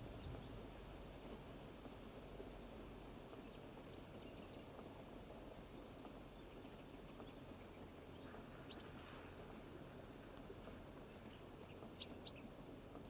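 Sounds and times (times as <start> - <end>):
soft rain: 0.0 - 13.0.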